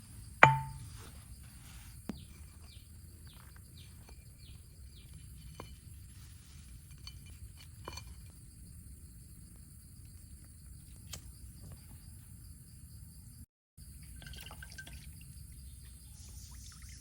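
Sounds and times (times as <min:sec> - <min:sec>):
sharp knock with ringing tone: 0:00.4 - 0:00.9.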